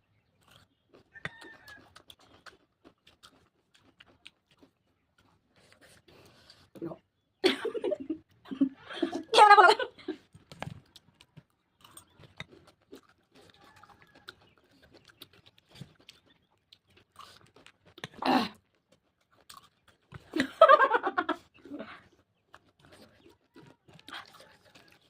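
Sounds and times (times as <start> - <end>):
chewing with wet mouth clicks: 0.1 - 7.3, 10.2 - 20.5, 21.3 - 25.0
person laughing or speaking: 7.4 - 10.2.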